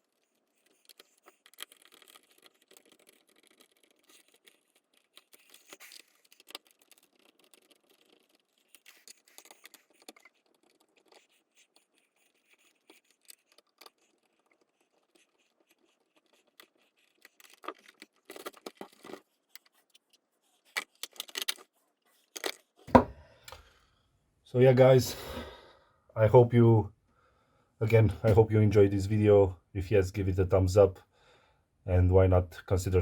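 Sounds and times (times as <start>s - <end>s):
small objects clicking and scraping: 0.0s - 23.8s.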